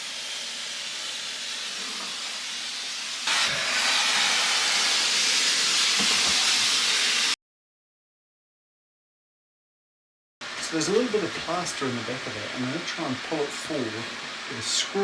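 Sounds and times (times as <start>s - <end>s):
wallpaper steamer hissing: 0.0s - 7.4s, 10.4s - 15.0s.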